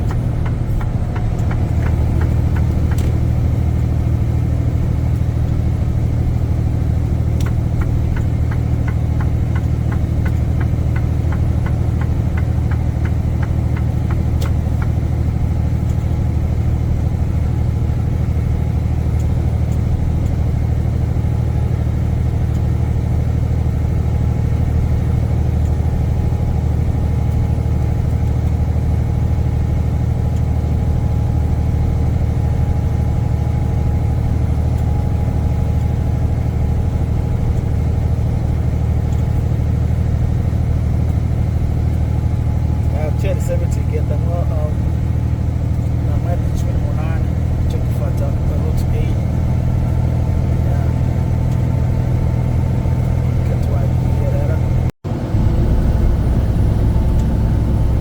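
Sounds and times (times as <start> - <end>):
truck engine drone with road noise: 0.0 - 58.0
quick regular ticking: 0.1 - 17.8.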